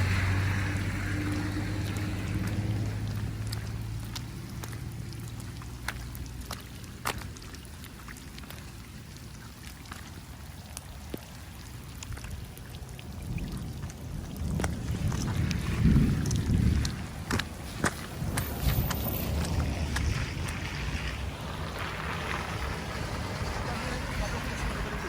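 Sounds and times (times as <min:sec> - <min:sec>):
low rumble: 0:00.0 - 0:07.2, 0:12.0 - 0:25.0
rain hiss: 0:00.0 - 0:07.9, 0:10.1 - 0:25.0
drops ticking: 0:00.0 - 0:15.6.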